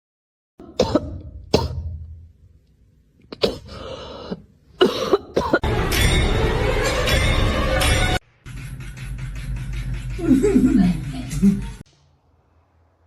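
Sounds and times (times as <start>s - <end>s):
person coughing: 0.6s - 1.9s, 3.3s - 5.7s.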